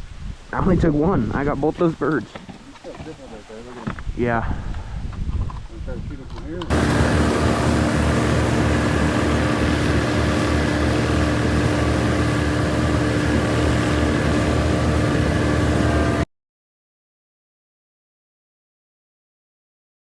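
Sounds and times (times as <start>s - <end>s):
motor engine running: 6.7s - 16.3s.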